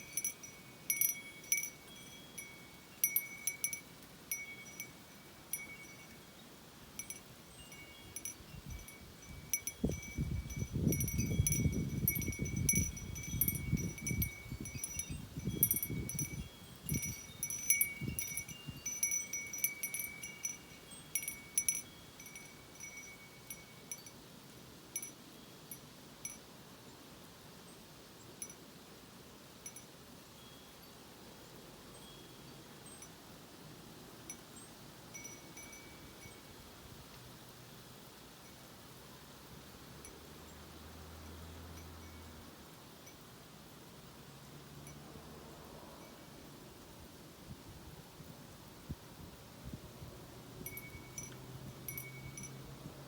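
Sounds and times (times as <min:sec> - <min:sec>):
wind chimes ringing: 0:00.0 - 0:24.2, 0:25.0 - 0:26.4, 0:34.3 - 0:36.5, 0:41.7 - 0:42.5, 0:50.6 - 0:52.8
wind rumble on microphone: 0:07.8 - 0:24.0, 0:44.8 - 0:53.0.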